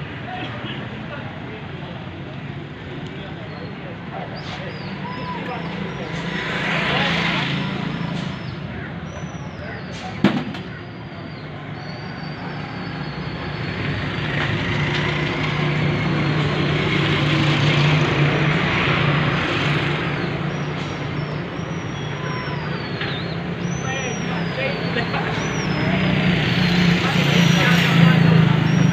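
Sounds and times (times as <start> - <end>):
motor vehicle passing by: 4.5 - 8.6, 24.4 - 28.9.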